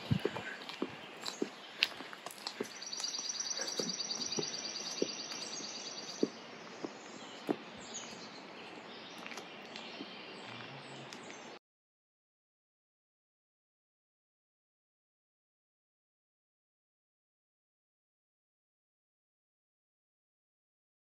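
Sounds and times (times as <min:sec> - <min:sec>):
footsteps on road: 0:00.0 - 0:11.6
bird trilling: 0:02.6 - 0:06.9.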